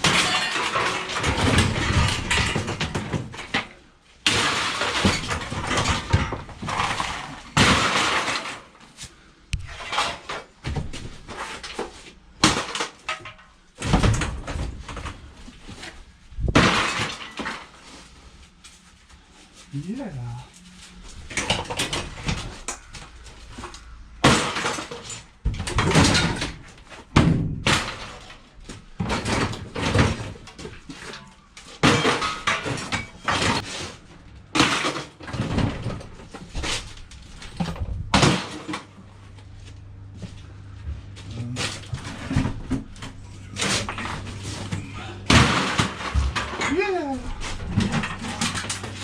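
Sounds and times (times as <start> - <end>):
scrap metal clanking: 0.0 - 3.7, 40.2 - 49.0.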